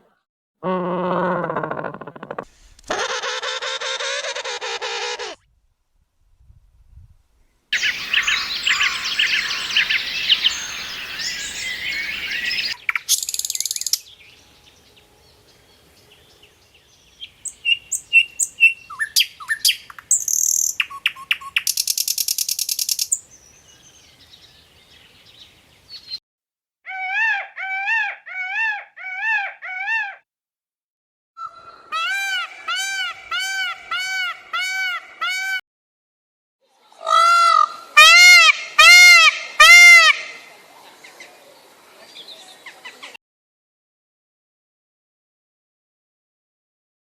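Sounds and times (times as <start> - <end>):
birds chirping and calling: 7.8 - 14.8.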